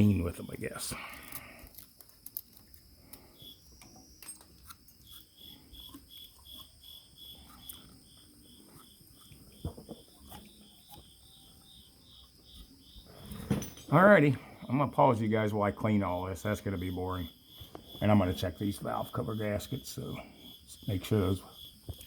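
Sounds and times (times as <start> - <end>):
cricket chirping: 0.0 - 22.0.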